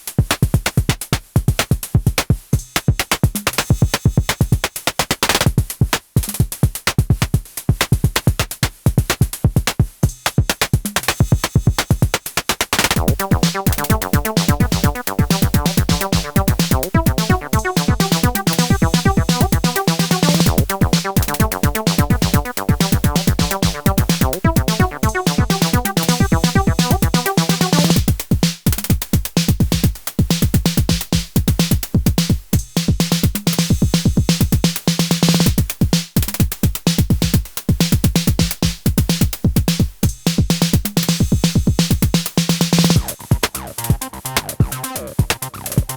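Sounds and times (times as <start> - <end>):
drum-machine beat: 0.0 - 45.9
pitched synth sequence: 13.0 - 28.0
steady synth bass note: 13.0 - 28.0.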